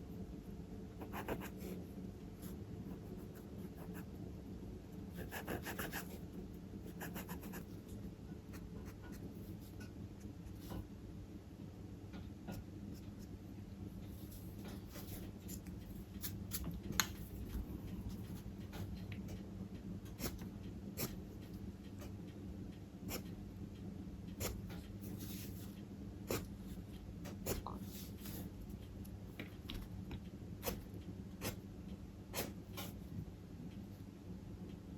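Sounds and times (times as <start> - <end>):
steady low hum: 0.0 - 34.9
charcoal scratching on paper: 5.2 - 6.1.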